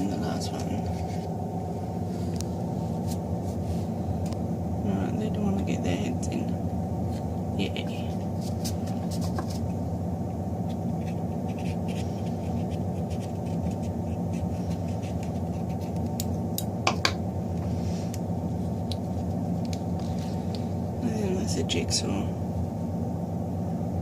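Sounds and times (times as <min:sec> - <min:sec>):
steady low hum: 0:00.0 - 0:24.0
scissors clicking on eggshells: 0:12.7 - 0:16.7.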